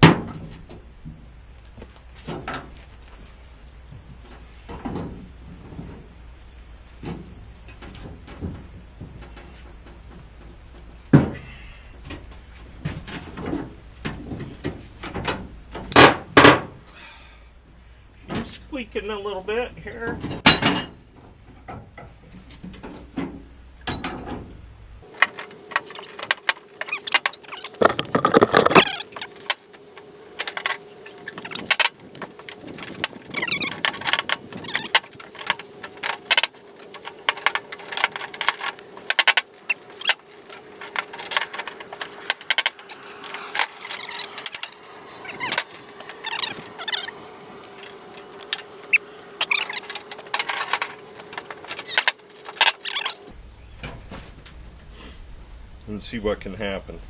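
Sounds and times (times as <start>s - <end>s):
faint steady hum: 25.0s - 53.8s
metal tools clanking on metal: 25.1s - 53.3s.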